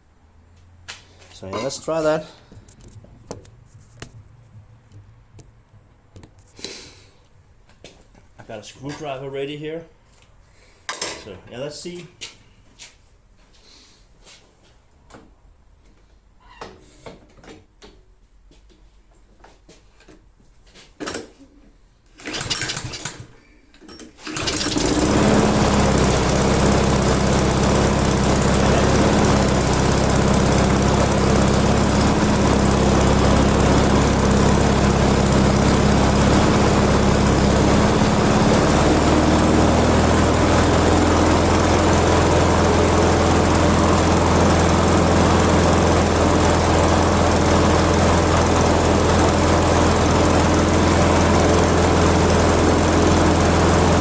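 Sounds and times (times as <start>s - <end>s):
lawn mower engine running: 22.2s - 23.1s, 24.2s - 54.0s
pull-starter cord pulls: 22.2s - 26.5s.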